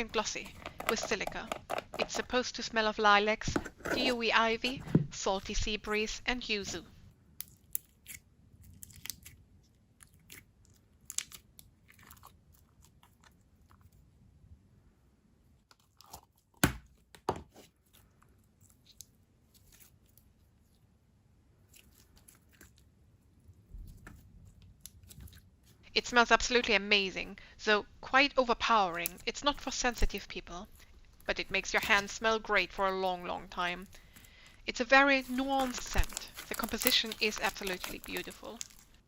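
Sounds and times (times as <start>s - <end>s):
slime clicking and crackling: 7.4s - 13.9s, 35.2s - 39.0s.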